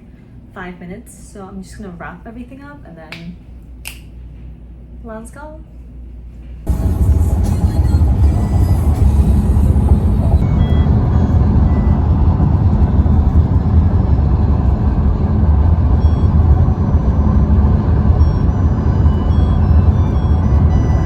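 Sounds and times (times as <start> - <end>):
car rumbling along road: 6.7 - 21.0.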